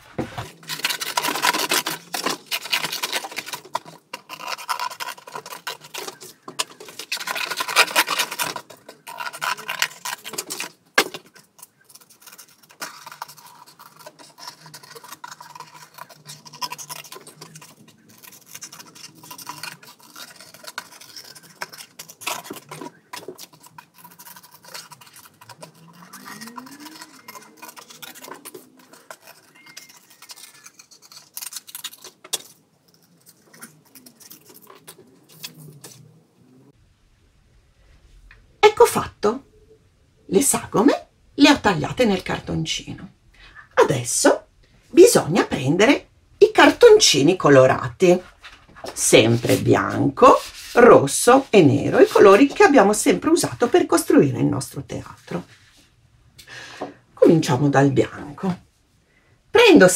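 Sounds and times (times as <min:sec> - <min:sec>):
scissors cutting cardboard: 0:00.0 - 0:36.1.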